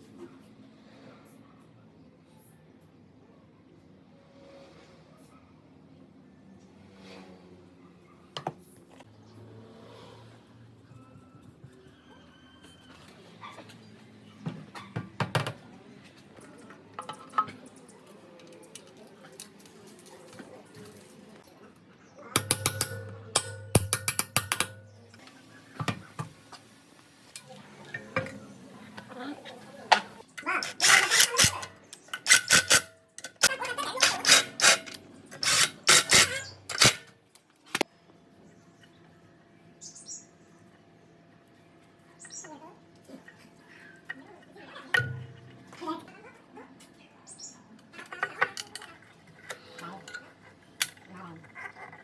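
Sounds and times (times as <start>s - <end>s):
hard parts knocking and clicking: 22.4s - 25.2s, 29.9s - 37.1s.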